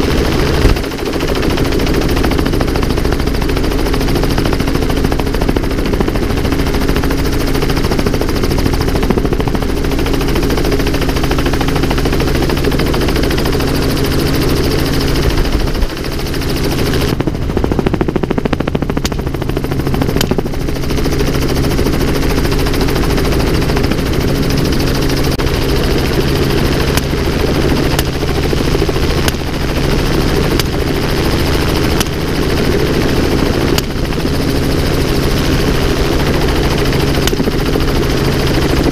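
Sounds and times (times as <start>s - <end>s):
helicopter engine and rotor: 0.0s - 38.9s
sharp cracks: 27.9s - 28.4s, 37.2s - 37.6s.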